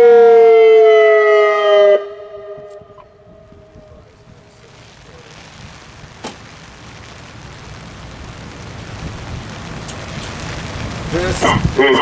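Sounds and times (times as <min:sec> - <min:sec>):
high-low siren: 0:00.0 - 0:04.4
steady rushing noise: 0:02.6 - 0:12.0.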